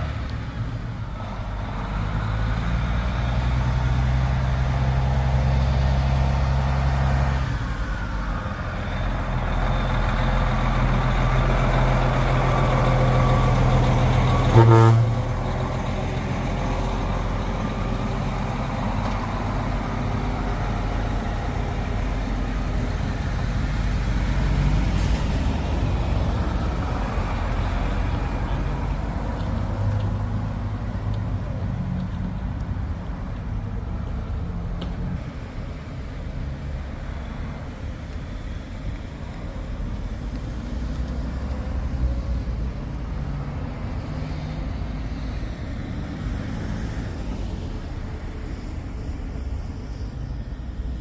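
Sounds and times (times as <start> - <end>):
heavy truck engine drone: 0.0 - 51.0
truck horn blast: 14.3 - 15.4.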